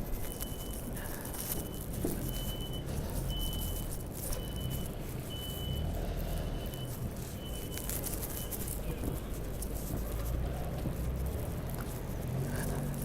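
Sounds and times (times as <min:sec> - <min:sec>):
low engine rumble: 0:00.0 - 0:13.0
reversing alarm beeping: 0:00.2 - 0:08.7.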